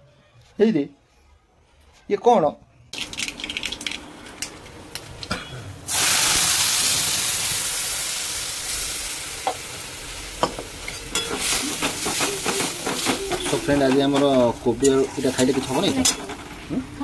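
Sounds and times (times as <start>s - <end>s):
food sizzling in hot oil: 5.9s - 17.0s
utensils clinking: 10.4s - 16.6s.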